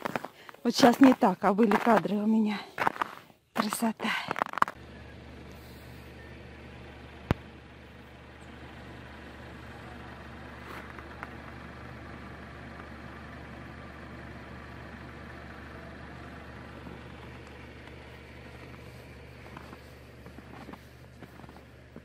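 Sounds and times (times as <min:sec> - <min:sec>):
car engine idling: 0:04.6 - 0:22.0.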